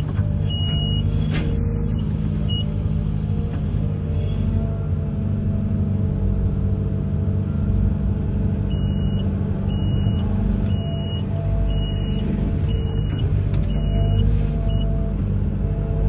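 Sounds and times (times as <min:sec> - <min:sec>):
excavator engine running: 0:00.0 - 0:16.0
high-pitched warning alarm beeping: 0:08.7 - 0:15.2.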